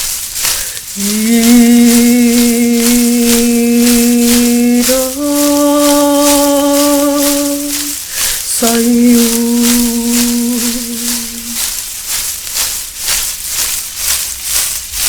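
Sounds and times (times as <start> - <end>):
hand rattle shaking: 0.0 - 15.0
person toning long notes: 0.8 - 11.6.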